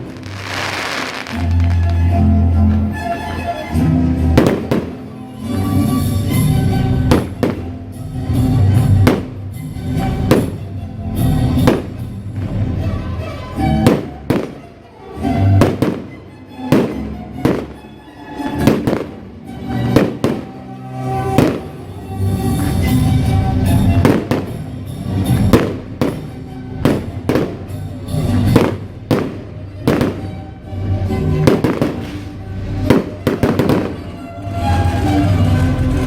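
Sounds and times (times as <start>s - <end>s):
fireworks bursting with bangs: 0.0s - 2.1s, 4.2s - 5.3s, 7.0s - 12.6s, 13.7s - 14.8s, 15.4s - 17.9s, 18.5s - 22.0s, 23.6s - 35.4s
loud music: 0.0s - 36.0s.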